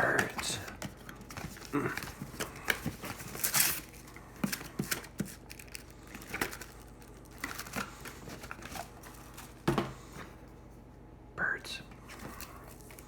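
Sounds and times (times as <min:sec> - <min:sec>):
plastic wrapping crinkling and tearing: 0:00.0 - 0:09.6.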